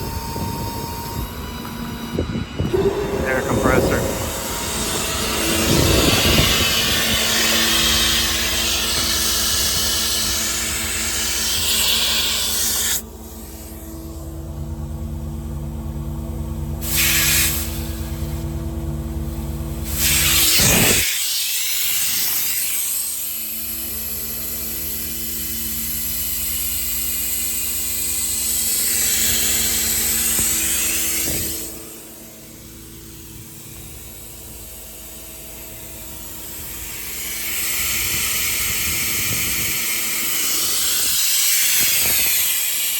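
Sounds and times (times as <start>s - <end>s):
steady machine hum: 0.0s - 16.8s, 23.7s - 41.9s
compressed air hissing: 2.7s - 13.8s, 16.8s - 18.3s, 19.9s - 23.9s.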